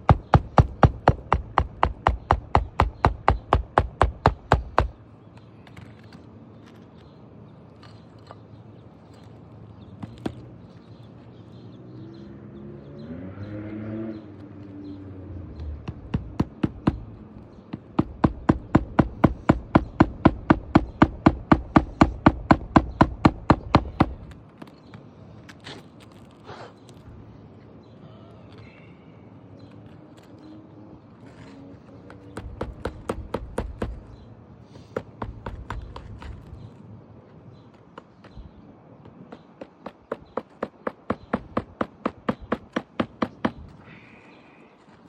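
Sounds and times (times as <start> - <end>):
hammer nailing shingle: 0.0 - 6.8, 10.0 - 10.6, 15.6 - 27.0, 31.3 - 36.8, 37.6 - 43.9.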